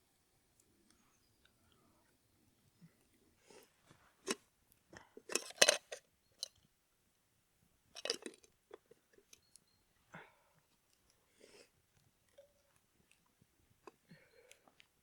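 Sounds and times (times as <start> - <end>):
handling clicks and clinks: 5.3 - 6.6, 8.0 - 8.5.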